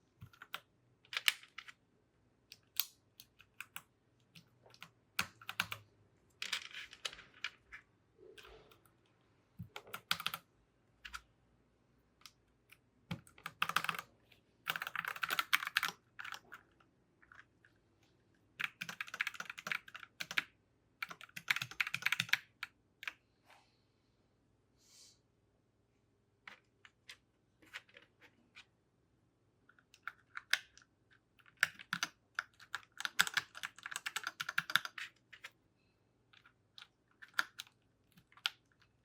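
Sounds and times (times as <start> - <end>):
mechanical keyboard clacking: 9.7 - 10.4, 13.1 - 14.1, 14.7 - 16.4, 18.6 - 22.6, 31.5 - 35.0.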